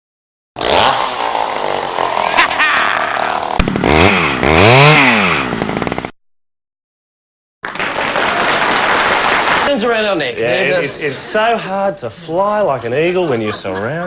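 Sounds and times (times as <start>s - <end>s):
chainsaw engine revving: 0.6s - 6.1s.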